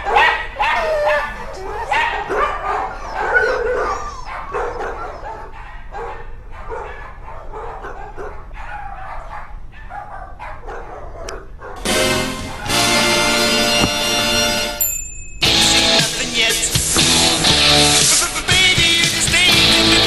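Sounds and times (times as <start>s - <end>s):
dog barking and yipping: 0.0s - 11.9s.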